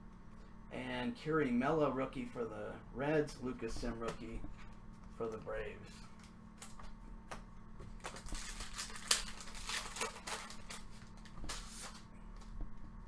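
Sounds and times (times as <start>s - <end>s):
cards and foil wrapper rustling: 8.0s - 12.1s.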